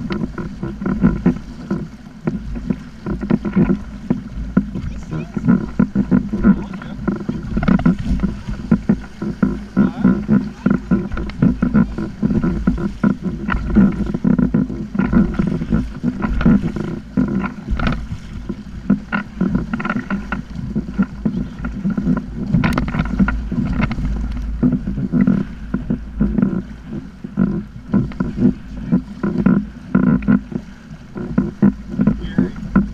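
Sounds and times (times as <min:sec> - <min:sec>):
water slapping against kayak hull: 0:00.0 - 0:32.9
wind rumble on microphone: 0:00.0 - 0:32.9.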